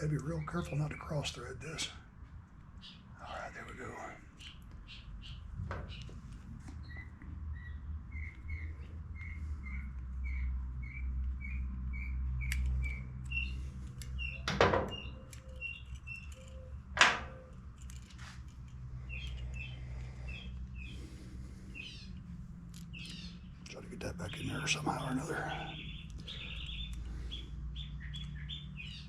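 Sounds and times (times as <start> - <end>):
small bird chirping: 2.8 - 17.6, 19.0 - 29.0.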